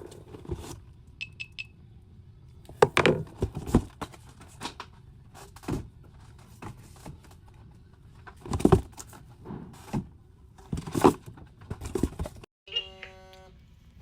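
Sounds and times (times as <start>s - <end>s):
rustling of merchandise: 2.7s - 12.5s
boxes knocking and clattering: 2.8s - 4.6s, 8.2s - 12.4s.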